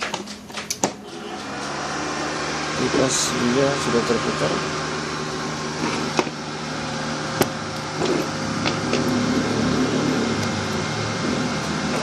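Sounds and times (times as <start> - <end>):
cooling fan humming: 0.0 - 12.0.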